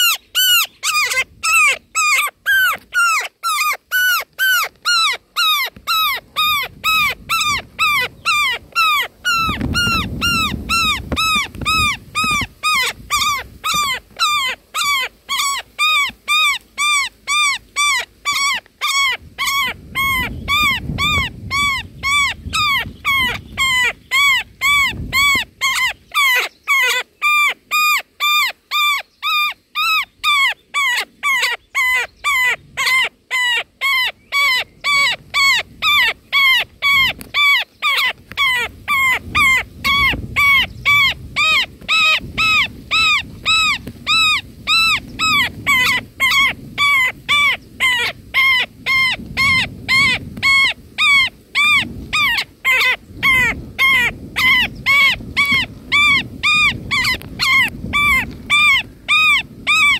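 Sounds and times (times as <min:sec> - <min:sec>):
nestling begging calls: 0:00.0 - 0:59.9.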